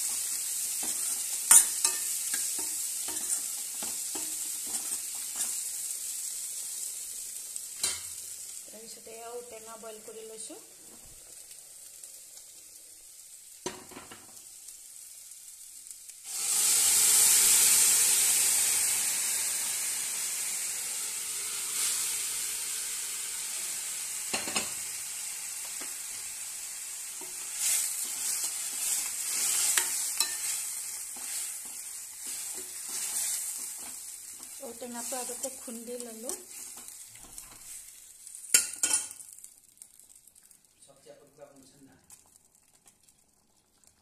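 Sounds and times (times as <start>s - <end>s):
food sizzling in hot oil: 0.0s - 44.0s
ladle clinking and scraping pot: 0.8s - 5.6s, 27.2s - 34.6s.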